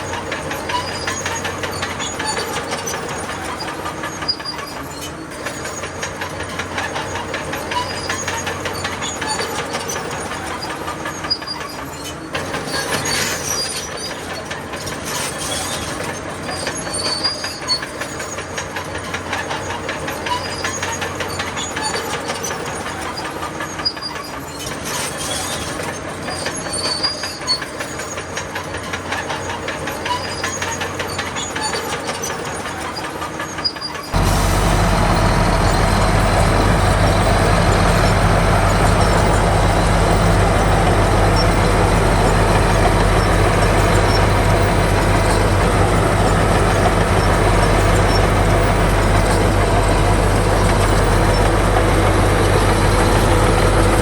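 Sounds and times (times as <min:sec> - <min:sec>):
steel tracks clattering: 0:00.0 - 0:54.0
heavy diesel engine running: 0:34.1 - 0:54.0.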